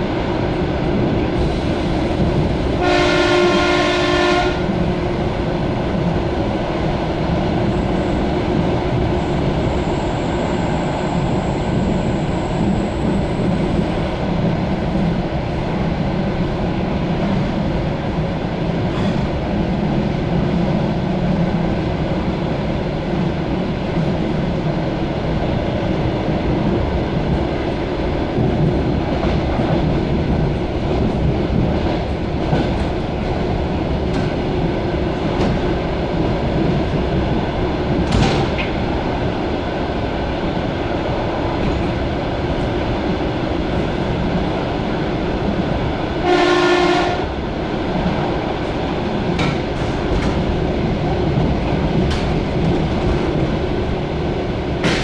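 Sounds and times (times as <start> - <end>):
train wheels rumbling on rails: 0.0 - 55.0
train horn blast: 2.8 - 4.8, 46.2 - 47.4.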